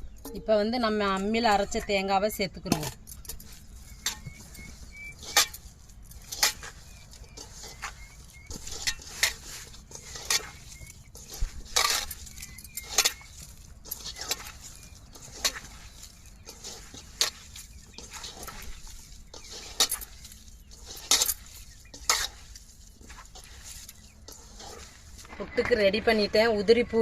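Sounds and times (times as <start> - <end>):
faint high chirps: 3.2 - 8.7, 10.4 - 11.3, 12.0 - 13.4.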